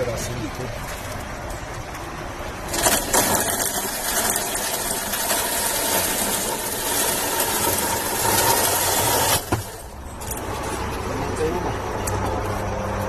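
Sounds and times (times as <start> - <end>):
chainsaw cutting wood: 2.7 - 9.9.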